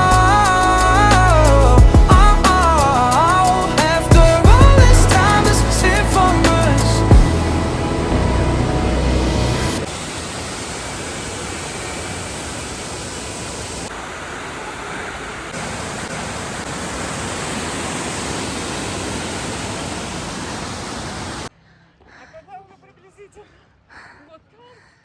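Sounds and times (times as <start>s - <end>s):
background music: 0.0s - 9.9s
waterfall rushing: 0.0s - 21.5s.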